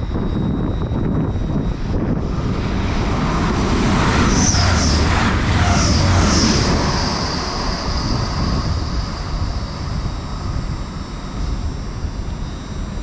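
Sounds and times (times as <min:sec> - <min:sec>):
diesel train passing at speed: 0:00.0 - 0:13.0.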